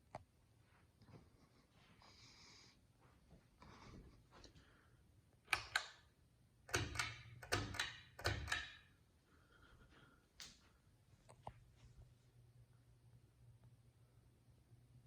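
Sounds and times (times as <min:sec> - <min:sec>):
faint low hum: 0:00.0 - 0:15.0
sharp clicks and knocks: 0:06.7 - 0:08.9.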